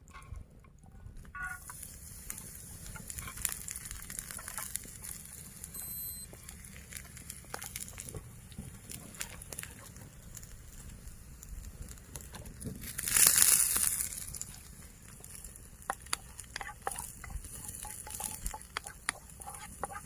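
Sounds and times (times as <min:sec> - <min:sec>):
crackling with sharp clicks: 0:00.0 - 0:20.0
short high beep: 0:05.7 - 0:06.3.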